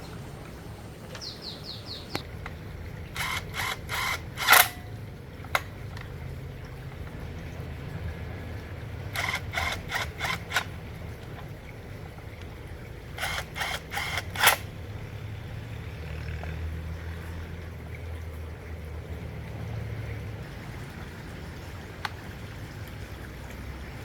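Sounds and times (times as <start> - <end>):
hand tools clicking on metal: 3.2 - 6.1, 9.1 - 10.7, 13.2 - 14.7.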